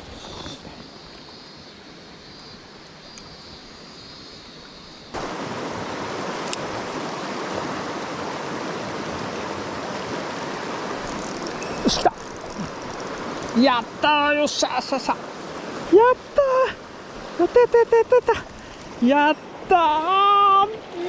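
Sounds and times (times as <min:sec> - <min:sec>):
stream water rushing: 0:00.0 - 0:21.0.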